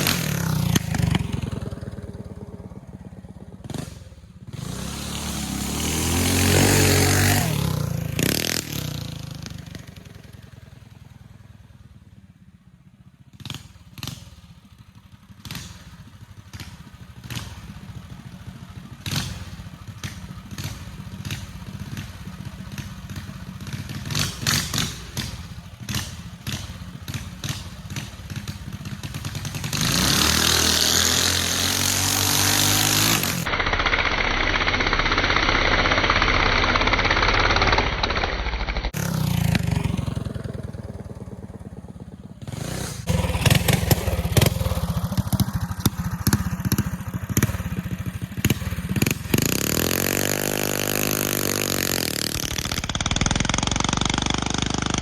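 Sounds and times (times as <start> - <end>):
mini bike engine revving: 0.0 - 11.6, 13.3 - 55.0
sharp clicks and knocks: 19.1 - 39.2, 51.3 - 55.0.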